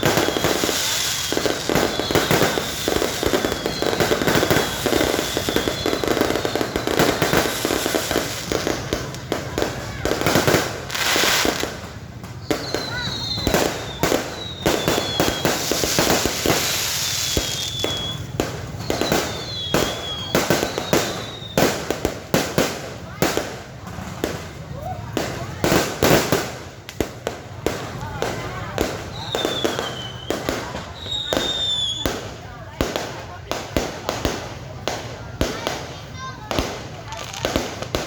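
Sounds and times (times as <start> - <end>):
firework whistles gliding in pitch: 0.0 - 8.6, 12.3 - 21.8, 29.0 - 32.2
fireworks cracks and bangs: 0.0 - 38.0.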